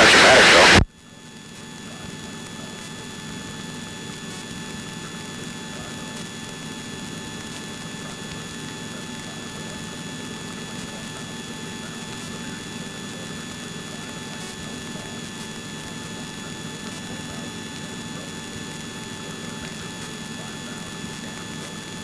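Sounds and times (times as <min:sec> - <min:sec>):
thin steady whines: 0:00.0 - 0:00.8.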